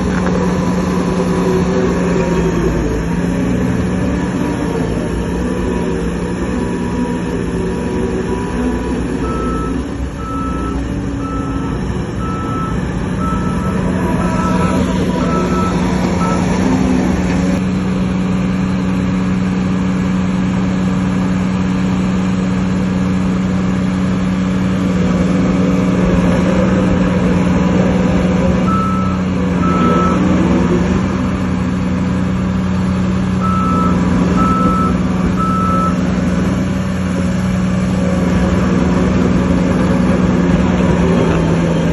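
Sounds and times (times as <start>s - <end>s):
diesel engine under load: 0.0s - 41.9s
reversing alarm beeping: 9.2s - 16.6s, 28.6s - 30.3s, 33.4s - 36.0s.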